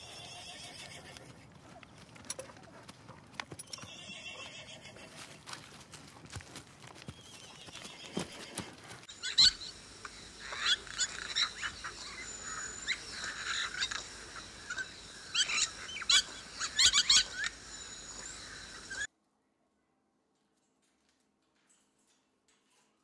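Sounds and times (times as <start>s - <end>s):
animal chirps and squeaks: 9.1s - 19.1s.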